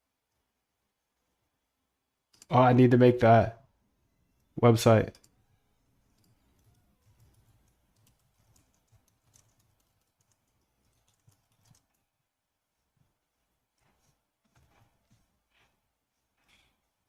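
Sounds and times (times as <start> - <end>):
computer keyboard typing: 6.1 - 12.1.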